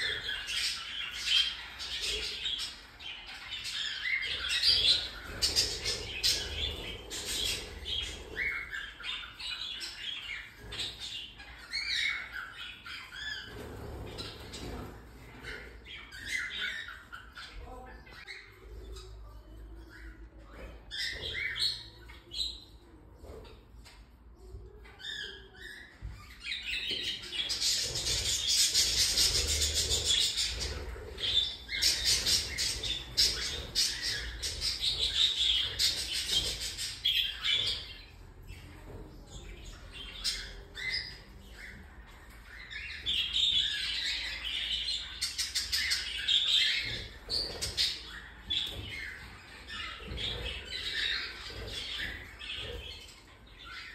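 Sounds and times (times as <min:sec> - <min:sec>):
cockatiel chicks calling: 0:25.0 - 0:38.2, 0:39.6 - 0:53.9.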